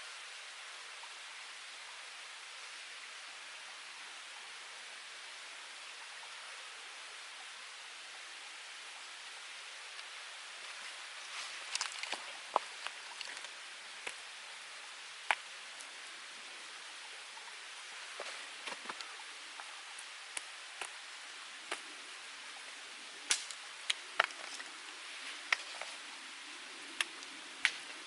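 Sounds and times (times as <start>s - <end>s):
wood fire hissing: 0.0s - 28.0s
fire crackles and pops: 15.2s - 16.0s, 18.1s - 21.0s, 21.6s - 22.0s, 23.2s - 26.0s, 26.6s - 28.0s.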